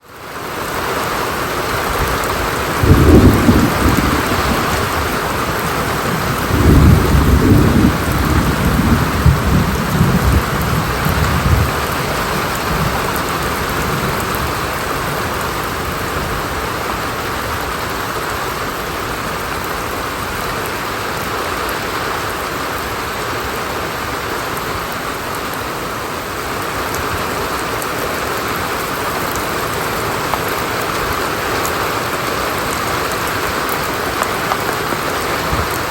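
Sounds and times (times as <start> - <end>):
steady rain: 0.0 - 35.9
thunder rumbling: 1.6 - 20.7, 27.1 - 35.9.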